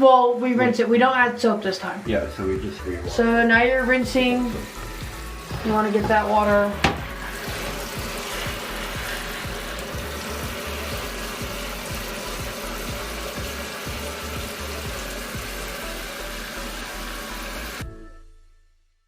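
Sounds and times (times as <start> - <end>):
water running into a tub: 0.0 - 17.8
background music: 0.0 - 19.0.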